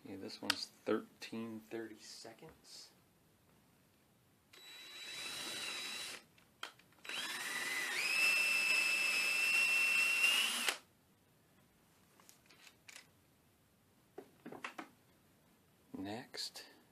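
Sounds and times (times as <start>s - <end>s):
power drill whining: 4.5s - 6.2s, 7.0s - 10.8s.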